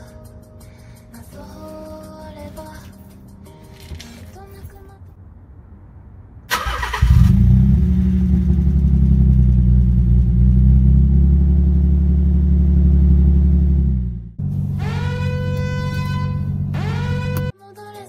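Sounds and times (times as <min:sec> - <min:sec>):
car engine cranking: 0:06.5 - 0:17.5.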